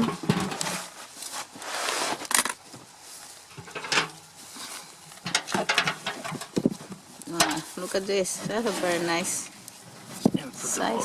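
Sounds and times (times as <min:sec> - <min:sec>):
soil rustling and scraping: 0:00.0 - 0:11.0.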